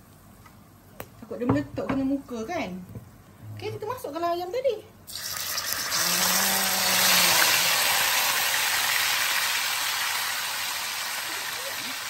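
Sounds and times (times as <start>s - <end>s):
chicken sizzling in hot oil: 5.1s - 12.0s.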